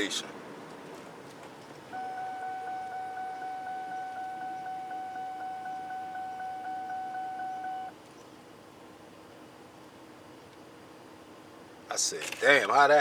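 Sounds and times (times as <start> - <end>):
pulsing electronic tone: 2.0 - 7.9.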